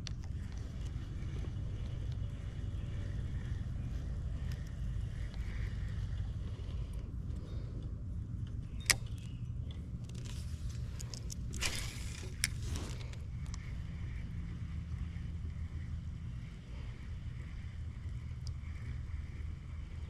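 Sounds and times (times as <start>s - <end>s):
sharp click: 8.5s - 9.4s.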